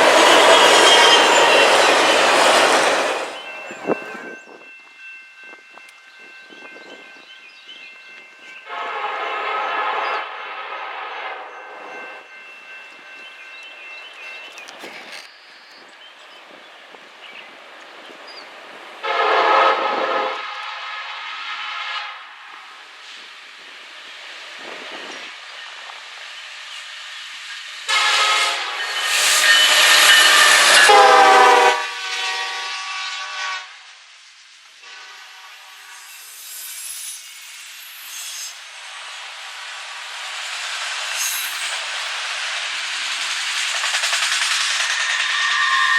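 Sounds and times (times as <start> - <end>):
train rumble: 0.0 - 45.9
locomotive air horn blast: 8.7 - 11.5, 19.0 - 22.5, 27.9 - 33.9, 34.8 - 36.1.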